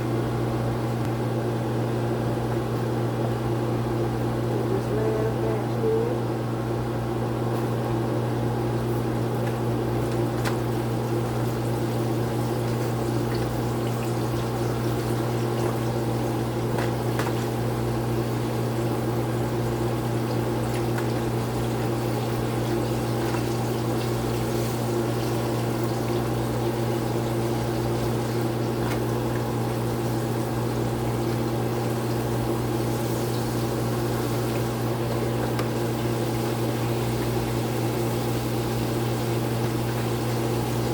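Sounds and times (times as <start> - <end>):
chicken deep-frying in oil: 8.5 - 40.9.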